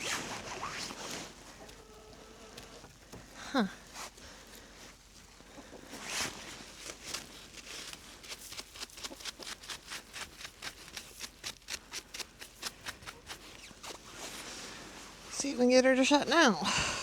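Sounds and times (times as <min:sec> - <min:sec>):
straw and snow scraped by hand: 0:00.0 - 0:01.8, 0:05.8 - 0:15.7.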